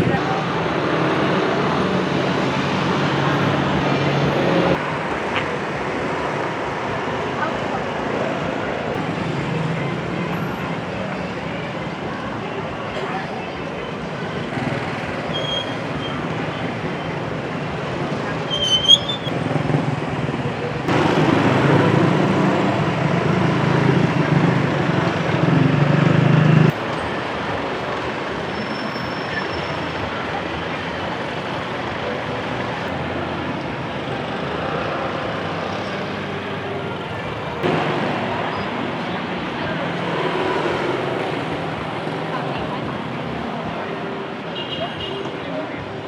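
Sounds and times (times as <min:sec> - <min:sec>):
road traffic: 0:00.0 - 0:46.0
brief high squeak: 0:15.3 - 0:16.2, 0:18.5 - 0:19.3
motorcycles passing: 0:19.2 - 0:26.8.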